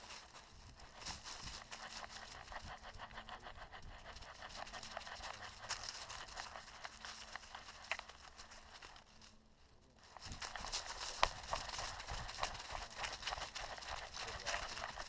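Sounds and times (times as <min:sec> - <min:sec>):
footsteps crunching on dry trail: 0:10.0 - 0:15.0.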